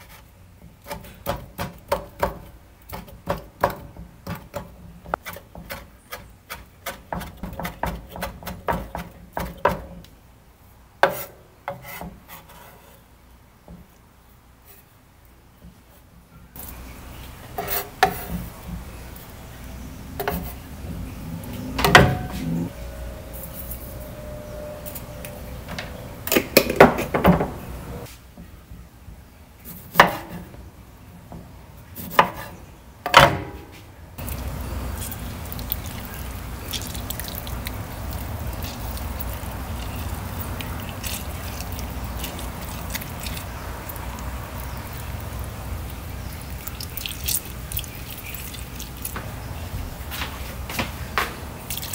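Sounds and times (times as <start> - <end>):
low background hum: 0.0 - 51.9
brief ringing tone: 21.3 - 26.3.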